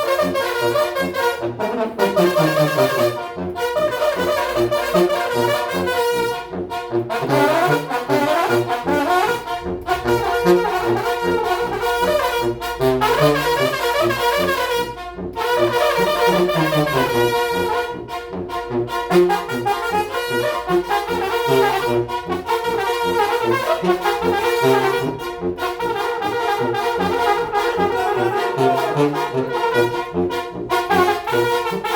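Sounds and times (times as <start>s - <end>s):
brass band playing: 0.0s - 31.9s
pulsing bass line: 23.9s - 30.7s.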